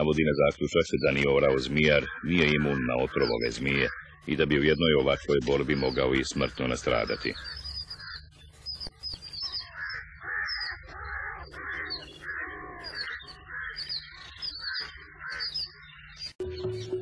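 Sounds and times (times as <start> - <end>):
bird harsh calls and chirps: 0.0 - 17.0.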